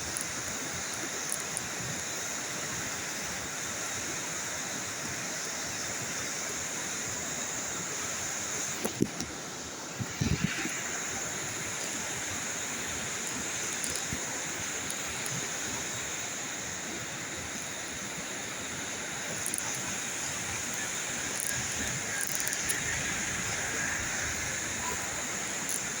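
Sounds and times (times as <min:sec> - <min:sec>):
rushing outdoor noise: 0:00.0 - 0:26.0.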